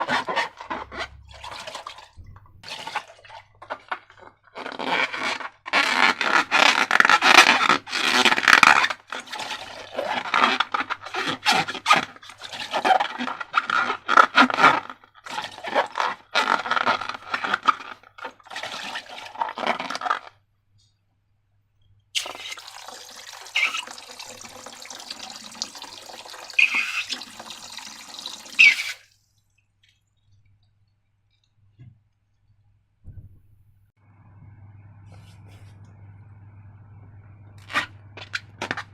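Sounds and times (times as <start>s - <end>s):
slime squelching by hand: 0.0s - 20.3s, 22.2s - 31.0s.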